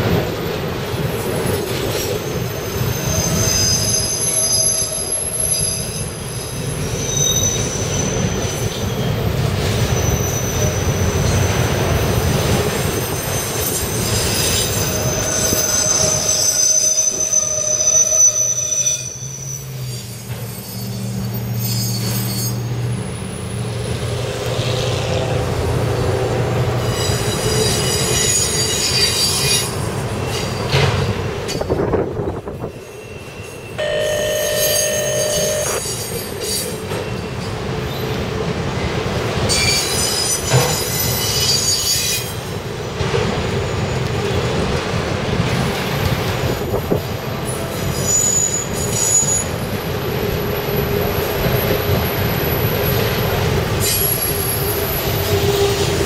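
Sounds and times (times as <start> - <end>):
train wheels rumbling on rails: 0.0 - 56.0
high wheel squeals: 2.0 - 11.5, 12.2 - 24.0, 26.8 - 30.7, 32.6 - 38.1, 39.5 - 42.5, 46.7 - 56.0.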